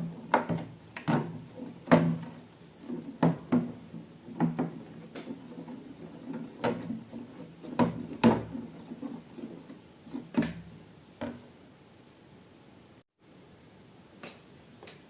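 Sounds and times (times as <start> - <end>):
handling knocks and clicks: 0.0 - 11.4.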